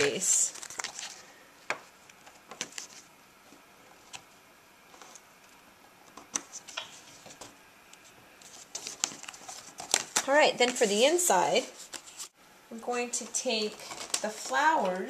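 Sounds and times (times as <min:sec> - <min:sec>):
soft paper rustles: 0:00.0 - 0:12.4, 0:13.2 - 0:15.0.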